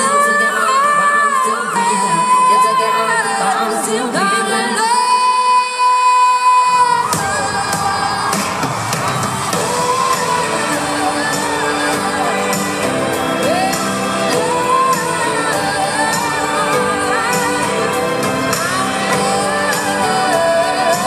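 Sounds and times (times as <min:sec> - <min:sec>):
live pop music with singing: 0:00.0 - 0:21.0
audience shouts and whoops: 0:06.7 - 0:21.0.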